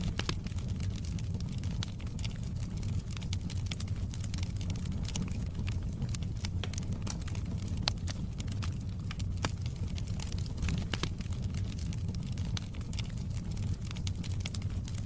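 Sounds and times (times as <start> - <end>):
fire crackling and popping: 0.0 - 15.0
fire flames rumbling: 0.0 - 15.0.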